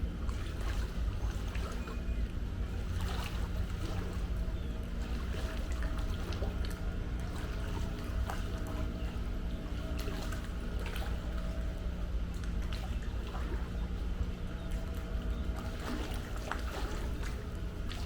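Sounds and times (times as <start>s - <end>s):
low hum: 0.0s - 18.0s
pool water splashing: 0.0s - 18.0s.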